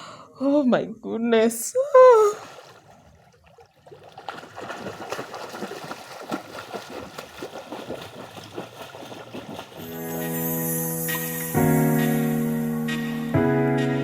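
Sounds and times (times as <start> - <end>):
water splashing in a pool: 2.0 - 10.2.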